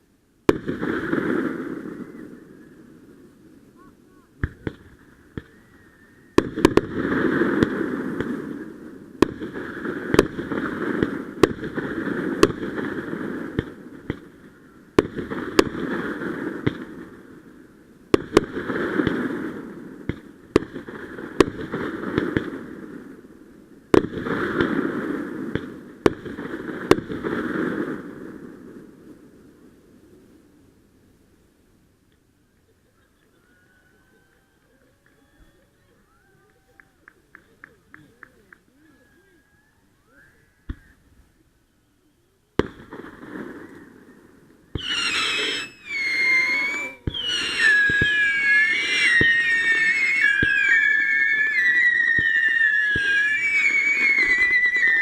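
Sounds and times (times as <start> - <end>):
fireworks exploding with echo: 0.4 - 30.5, 42.6 - 55.0.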